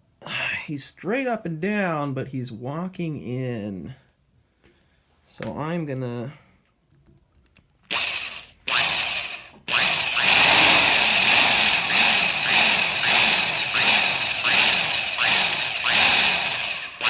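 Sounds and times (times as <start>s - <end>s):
power drill boring into wood: 7.9s - 17.0s.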